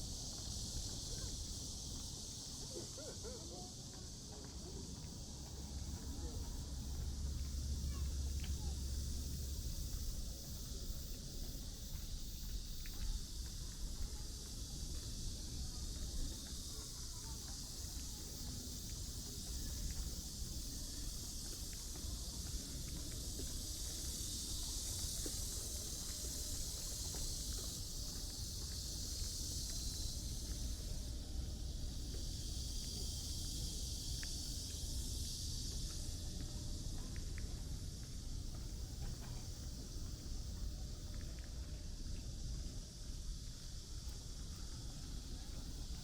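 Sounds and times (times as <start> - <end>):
low rumble of city traffic: 0.0 - 41.1
faint footsteps: 0.0 - 46.0
high insect hum: 0.0 - 46.0
low background rumble: 4.5 - 16.4.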